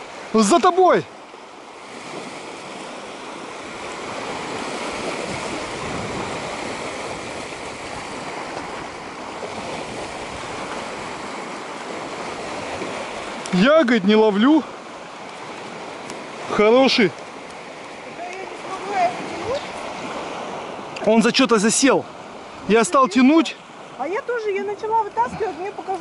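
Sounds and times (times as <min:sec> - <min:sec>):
water rushing: 0:00.0 - 0:26.0
wind rushing: 0:04.4 - 0:09.0.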